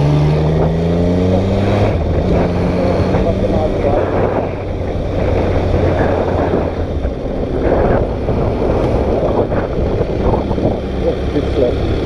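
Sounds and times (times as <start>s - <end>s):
motorcycle engine running: 0.0s - 12.0s
wind rushing over microphone: 0.0s - 12.0s.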